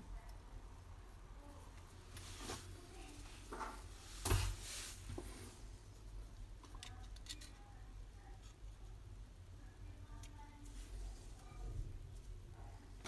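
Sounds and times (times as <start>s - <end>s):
low steady hum: 0.0s - 13.0s
light clicks and handling noises: 0.2s - 9.0s.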